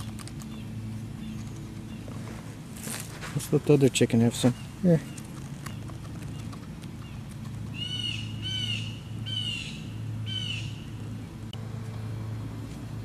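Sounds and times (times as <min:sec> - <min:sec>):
low steady hum: 0:00.0 - 0:13.0
bird squawking: 0:04.4 - 0:10.8.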